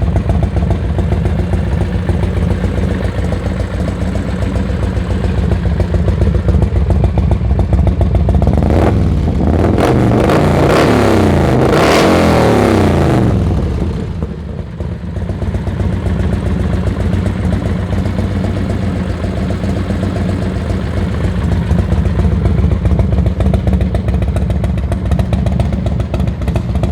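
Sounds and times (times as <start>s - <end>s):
motorcycle engine idling and revving: 0.0s - 26.9s.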